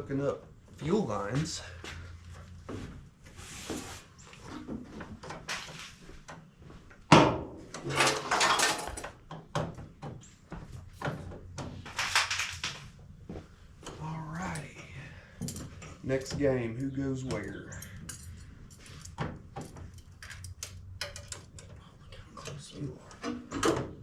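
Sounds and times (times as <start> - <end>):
tools clicking on engine parts: 17.7 - 21.7.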